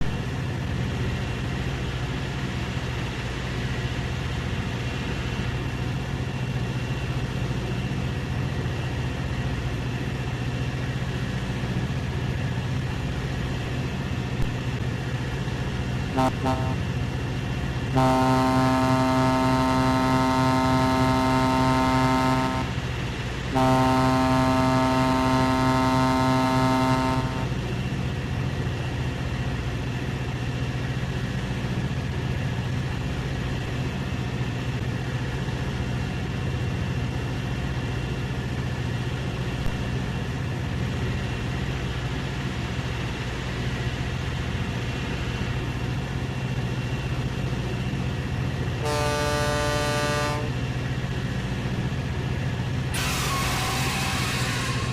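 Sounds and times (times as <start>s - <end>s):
ship's horn blasts: 16.1s - 17.0s, 17.9s - 27.6s, 48.8s - 50.7s, 52.9s - 54.9s.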